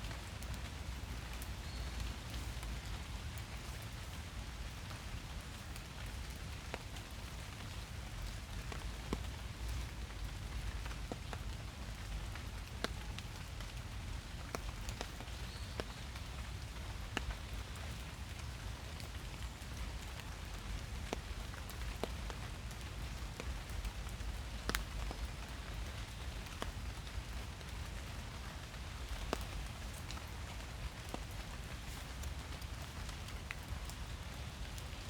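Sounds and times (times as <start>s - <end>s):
raindrops ticking: 0.0s - 35.0s
steady rain in a forest: 0.0s - 35.0s.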